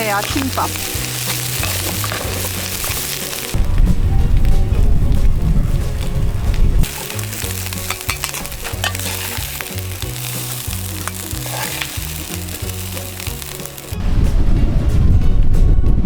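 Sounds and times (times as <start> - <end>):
stirring clicks: 0.0 - 3.6, 6.8 - 14.0
rice sizzling in a frying pan: 0.0 - 14.0
soft background music: 0.0 - 16.0.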